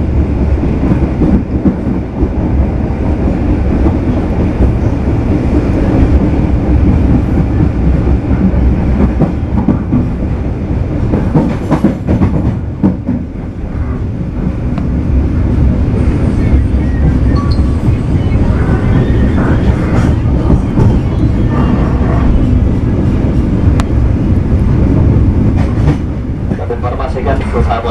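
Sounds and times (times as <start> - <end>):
train wheels rumbling on rails: 0.0 - 27.9.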